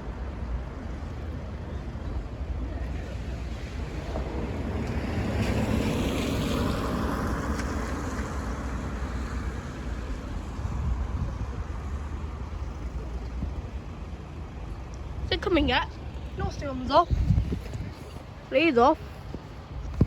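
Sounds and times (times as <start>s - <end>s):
wind on microphone: 0.0s - 20.0s
vehicle passing by: 3.0s - 13.1s.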